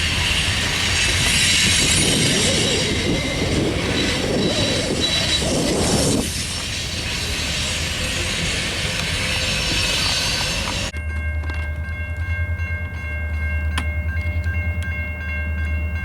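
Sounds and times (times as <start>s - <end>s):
high wheel squeal: 0.0s - 10.9s
freight cars rumbling on rails: 0.0s - 16.0s.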